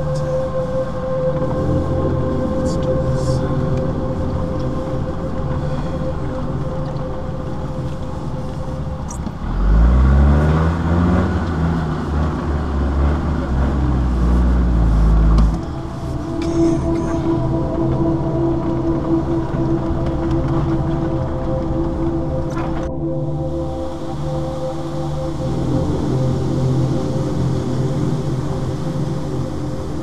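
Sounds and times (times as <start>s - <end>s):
off-road vehicle engine running: 1.4s - 23.6s.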